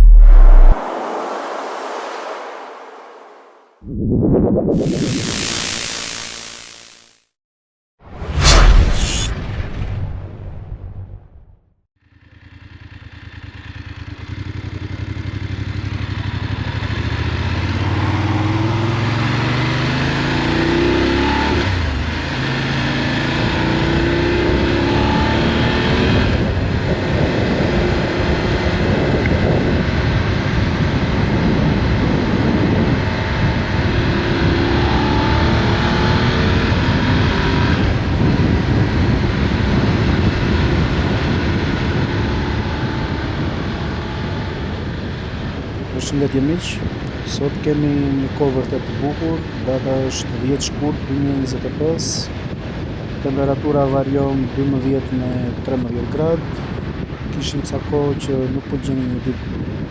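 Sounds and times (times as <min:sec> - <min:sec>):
wind and road noise: 0:00.0 - 0:07.2, 0:12.2 - 0:59.9
motorcycle engine revving: 0:12.2 - 0:26.5.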